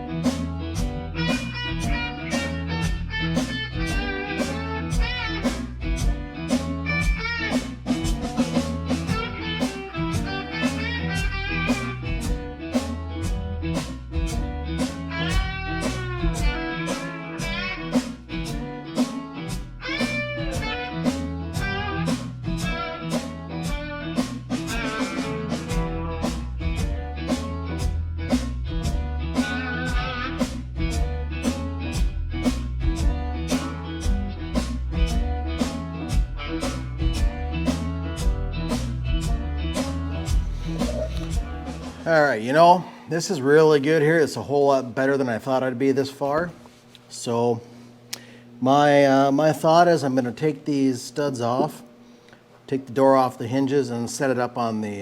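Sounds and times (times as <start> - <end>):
drum kit beat: 0.0 - 42.4
blues music with electric guitar: 0.0 - 44.0.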